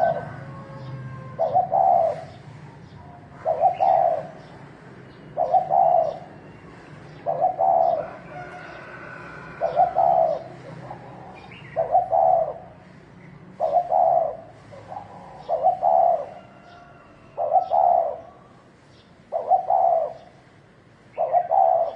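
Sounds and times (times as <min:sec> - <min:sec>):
dove cooing: 0:00.0 - 0:18.7, 0:19.3 - 0:20.4, 0:21.1 - 0:21.9.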